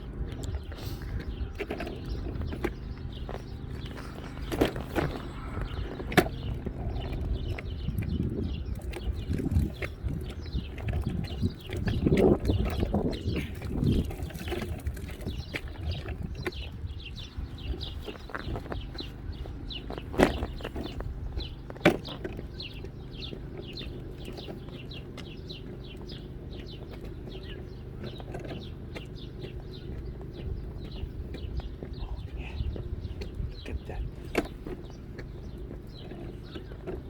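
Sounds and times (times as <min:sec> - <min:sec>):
low rumble: 0:00.0 - 0:18.8
small birds chirping: 0:00.0 - 0:37.0.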